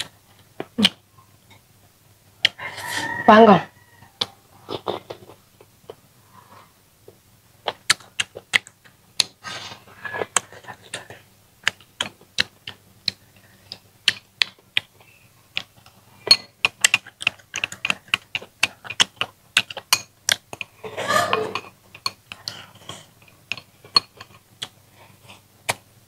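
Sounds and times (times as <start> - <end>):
wet smacking and chewing: 7.1 - 9.4, 10.0 - 20.8
breathy hiss: 9.4 - 10.3.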